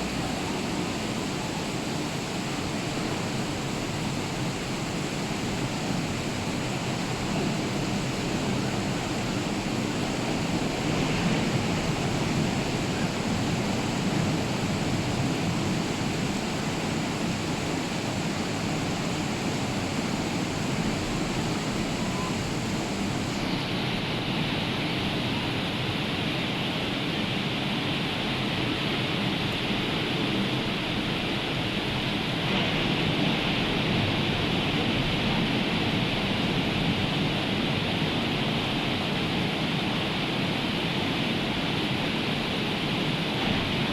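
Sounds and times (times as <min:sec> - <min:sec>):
rain falling: 0:00.0 - 0:23.4
rough surf: 0:00.0 - 0:25.1.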